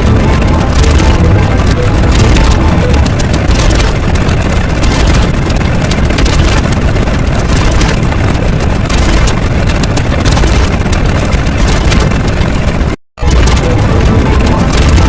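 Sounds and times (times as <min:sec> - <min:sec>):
crackly flickers: 0:00.0 - 0:15.0
dense layered noisy rumble: 0:00.0 - 0:15.0.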